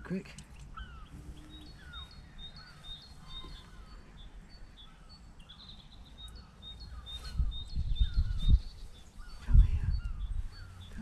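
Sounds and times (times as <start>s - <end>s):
small birds singing: 0.0s - 11.0s.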